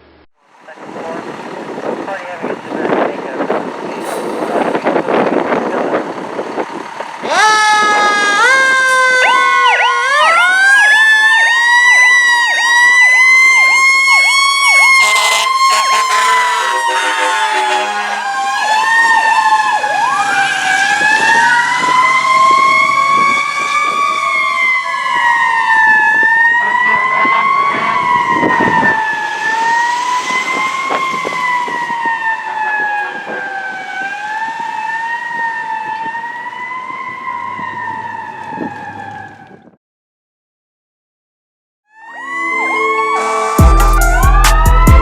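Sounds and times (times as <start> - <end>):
fire engine siren wailing: 0.4 - 39.8, 41.9 - 45.0
air horn blast: 14.9 - 18.9, 42.0 - 45.0.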